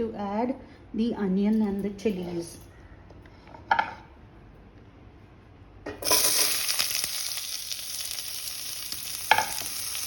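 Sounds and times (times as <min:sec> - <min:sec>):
vegetables sizzling in hot oil: 0:06.0 - 0:10.0.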